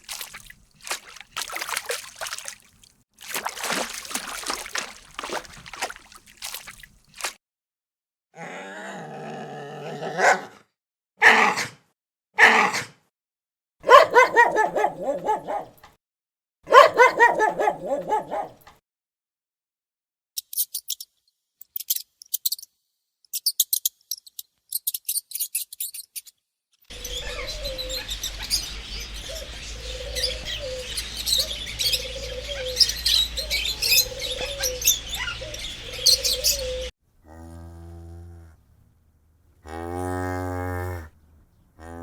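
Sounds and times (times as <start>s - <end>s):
small birds chirping: 0.0s - 7.3s, 20.4s - 26.3s, 26.9s - 36.9s
low bird call: 26.9s - 36.9s.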